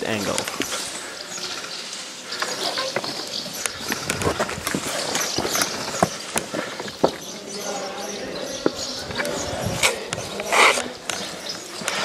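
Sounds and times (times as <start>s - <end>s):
hurried footsteps on loose ground: 0.0s - 12.0s.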